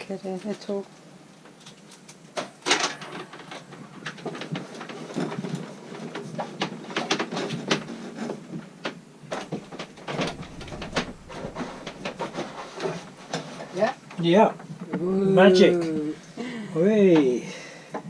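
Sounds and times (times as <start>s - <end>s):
cable scraping through panels: 9.3s - 14.2s.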